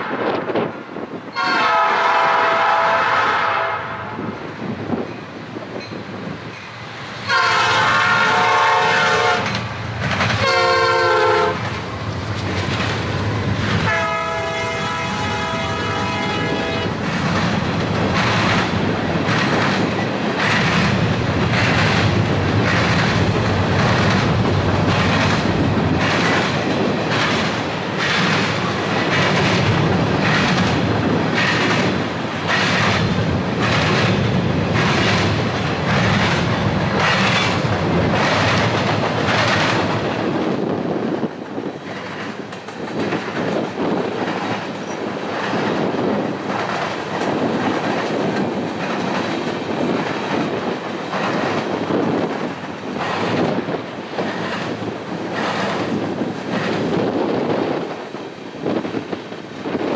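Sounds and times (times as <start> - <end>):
train rumbling past: 0.0 - 59.9
locomotive air horn blasts: 1.4 - 4.2, 7.3 - 9.5, 10.4 - 11.6, 13.9 - 17.0.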